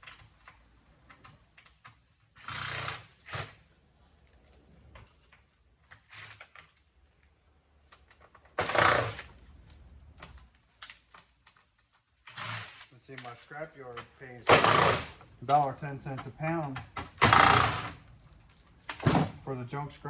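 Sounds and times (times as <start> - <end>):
electronic parts clicking and rattling: 15.2 - 17.4.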